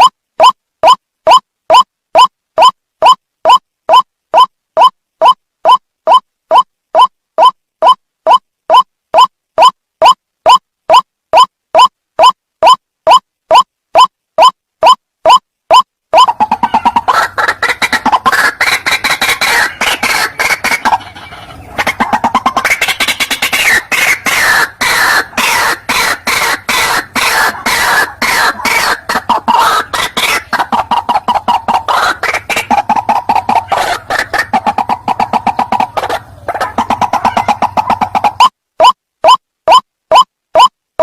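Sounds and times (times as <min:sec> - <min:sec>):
recorded waterhen calls: 0:00.0 - 0:40.7.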